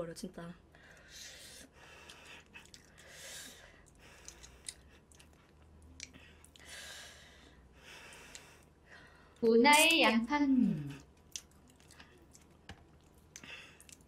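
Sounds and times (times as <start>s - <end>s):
chewing food: 2.0s - 3.0s, 3.8s - 6.6s, 11.0s - 14.0s.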